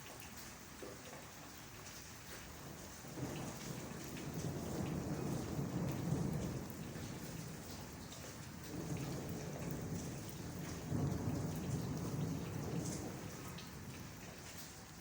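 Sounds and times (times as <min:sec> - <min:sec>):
heavy rain falling: 0:00.0 - 0:15.0
low thunder rumble: 0:03.1 - 0:14.4.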